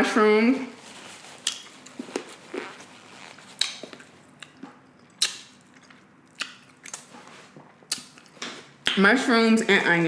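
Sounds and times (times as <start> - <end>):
wet chewing mouth smacks: 3.6 - 7.3, 7.9 - 9.0.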